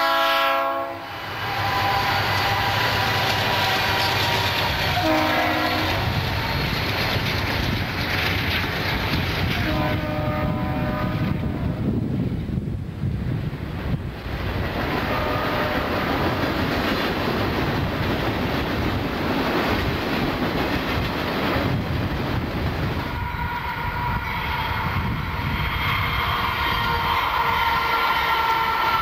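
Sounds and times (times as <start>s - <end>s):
locomotive horn: 0.0s - 6.5s, 9.5s - 11.8s, 14.9s - 16.1s, 23.1s - 29.0s
freight train cars clattering: 0.0s - 11.6s, 13.8s - 29.0s.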